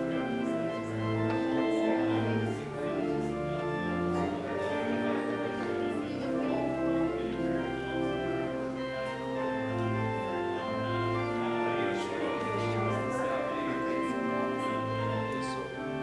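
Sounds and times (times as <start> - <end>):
organ playing sustained chords: 0.0 - 16.0.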